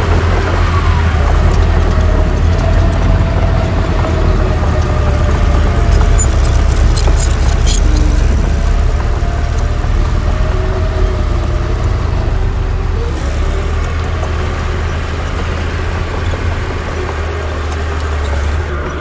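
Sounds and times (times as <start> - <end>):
heavy diesel machinery rumbling: 0.0 - 19.0.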